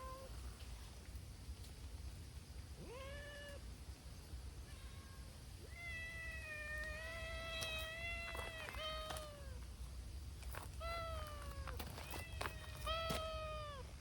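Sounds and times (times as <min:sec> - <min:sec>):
cats meowing: 0:02.8 - 0:03.6, 0:04.7 - 0:09.6.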